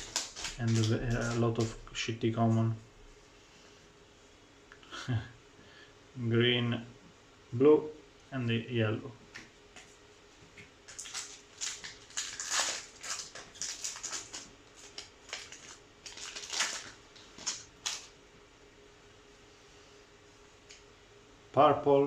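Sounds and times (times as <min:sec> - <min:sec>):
trading cards shuffling: 0:00.0 - 0:01.8, 0:10.9 - 0:18.1
foil wrapper crinkling: 0:00.0 - 0:02.0, 0:10.8 - 0:18.2.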